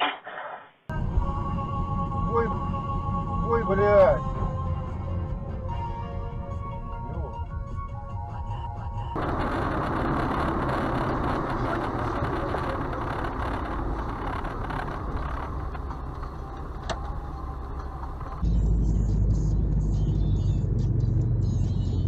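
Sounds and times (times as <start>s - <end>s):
deep engine rumble: 0.9s - 22.0s
car driving noise: 8.5s - 22.0s.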